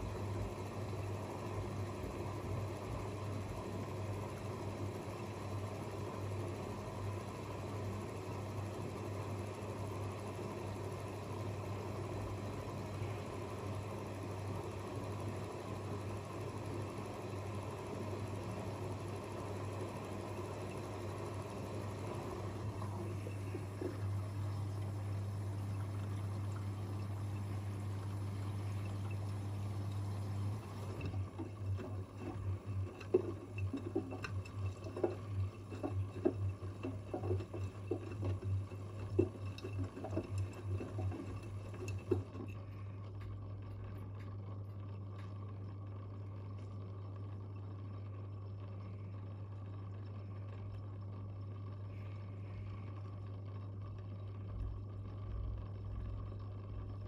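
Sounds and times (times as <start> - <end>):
washing machine hum: 0.0 - 57.0
water running: 20.3 - 44.0
laundry sloshing in drum: 21.9 - 43.0.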